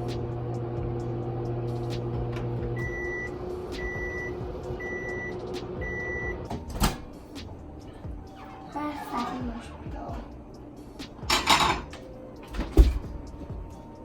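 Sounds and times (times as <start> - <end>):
microwave oven humming: 0.0 - 8.6
high beeps: 2.8 - 6.4.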